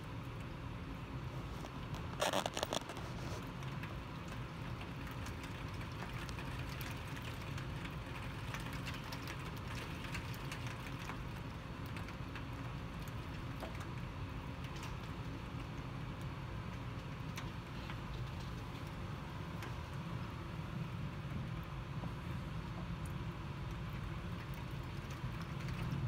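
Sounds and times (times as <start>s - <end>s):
steady low rumble: 9.4s - 26.0s.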